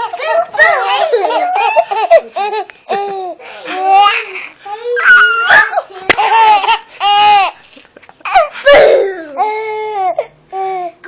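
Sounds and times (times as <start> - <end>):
baby laughing: 0.0 - 4.4, 5.4 - 9.5.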